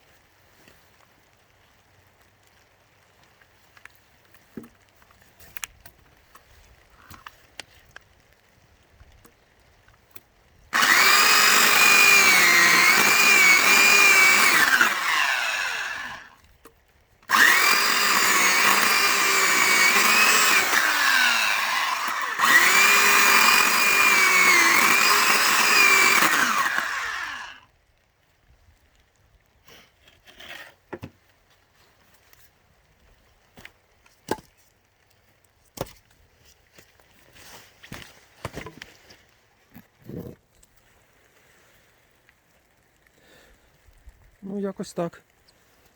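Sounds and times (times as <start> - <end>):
electric saw cutting wood: 10.8 - 16.3, 17.3 - 27.6.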